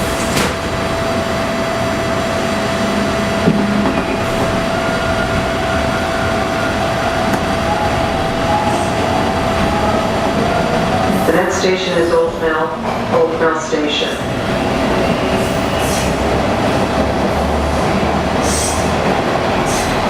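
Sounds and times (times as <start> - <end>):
subway wheels rumbling on track: 0.0 - 20.0
steady whine: 0.2 - 12.5.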